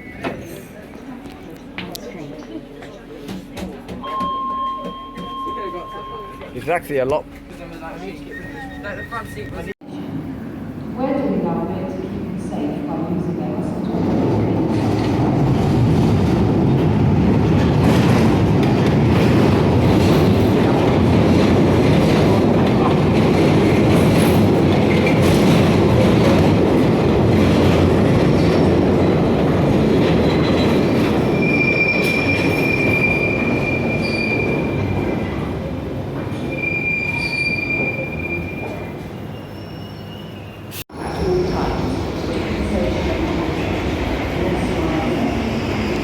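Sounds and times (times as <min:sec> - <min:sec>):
train rumbling on rails: 0:00.0 - 0:46.0
high-pitched wheel squeal: 0:08.2 - 0:09.7, 0:31.3 - 0:34.9, 0:36.5 - 0:40.6.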